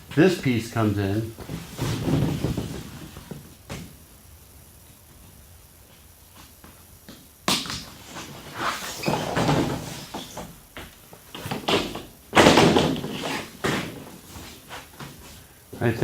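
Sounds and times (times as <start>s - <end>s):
plastic roofing panel rattling: 1.4s - 3.4s.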